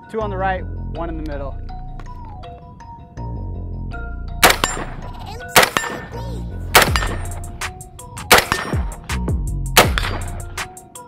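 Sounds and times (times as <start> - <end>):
background music: 0.0 - 11.0
rifle shots with ringing tail: 4.4 - 7.6, 8.3 - 9.1, 9.8 - 10.6.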